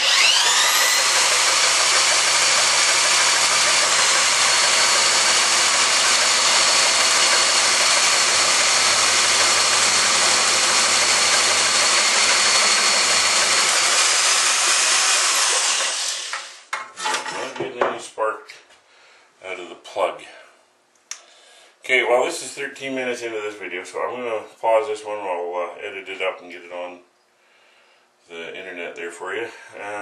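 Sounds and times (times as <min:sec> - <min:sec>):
small electric motor whining: 0:00.0 - 0:16.7.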